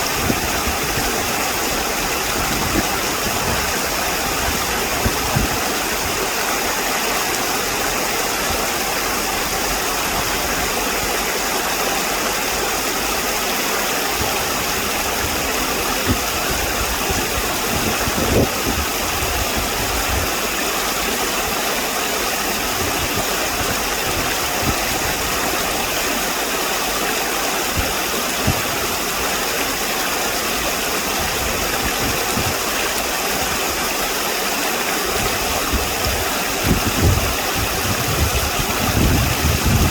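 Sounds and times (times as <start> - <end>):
steady rushing noise: 35.2 - 39.9.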